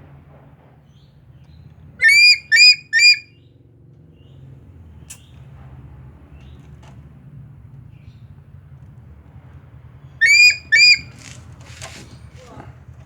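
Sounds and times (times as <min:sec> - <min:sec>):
eagle calling: 0:02.0 - 0:03.3, 0:10.2 - 0:12.6.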